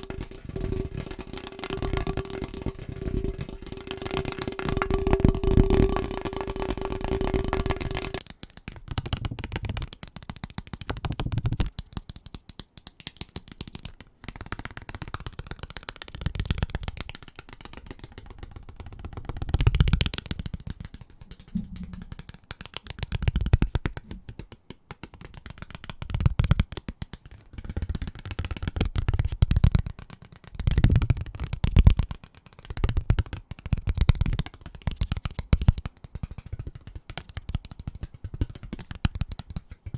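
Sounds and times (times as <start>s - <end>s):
fingernail tapping on objects: 0.0s - 12.5s.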